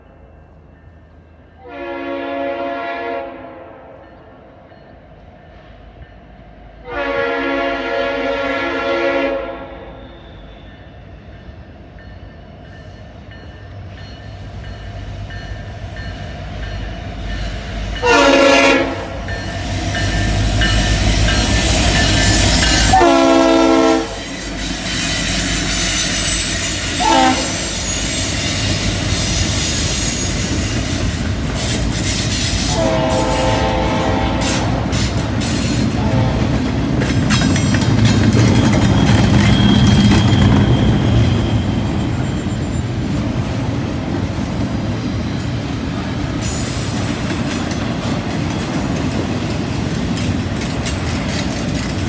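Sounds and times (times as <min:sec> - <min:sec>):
freight train rumbling past: 0:00.0 - 0:52.0
locomotive horn blasts: 0:01.6 - 0:04.0, 0:06.8 - 0:10.1, 0:18.0 - 0:19.4, 0:21.4 - 0:24.3, 0:26.6 - 0:27.9, 0:32.6 - 0:35.0, 0:35.9 - 0:36.6.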